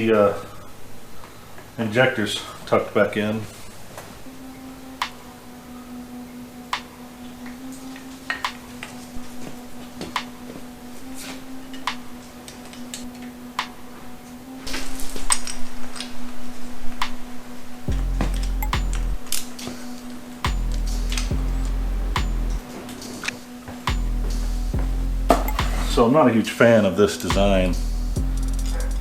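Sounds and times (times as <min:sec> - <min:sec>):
steady low hum: 0:04.2 - 0:26.1, 0:27.3 - 0:29.0.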